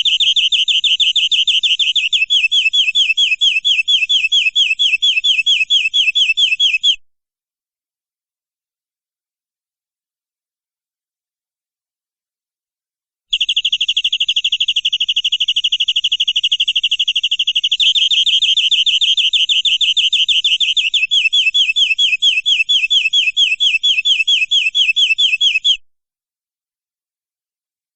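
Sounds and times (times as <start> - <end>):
canary singing trill: 0.0 - 7.0, 13.3 - 25.8.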